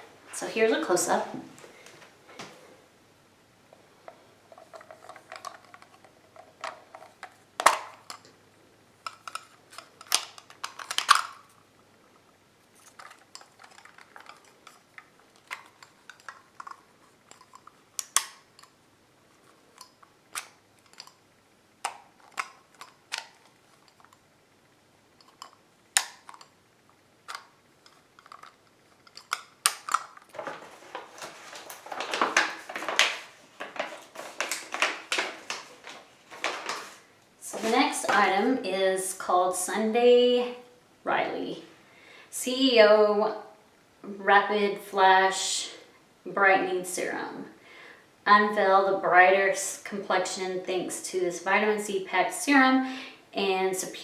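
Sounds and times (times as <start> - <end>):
rustling: 9.0 - 21.2, 25.1 - 38.5.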